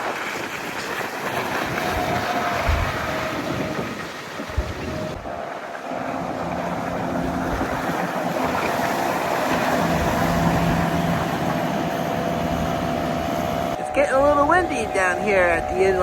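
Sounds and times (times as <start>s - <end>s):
motorboat engine humming: 0.0s - 16.0s
wind and water hiss: 0.0s - 16.0s.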